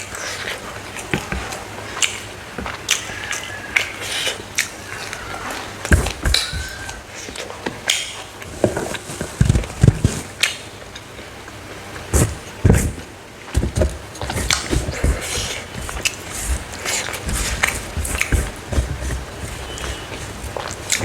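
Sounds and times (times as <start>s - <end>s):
chewing and crunching: 0.0s - 9.8s, 14.1s - 21.0s.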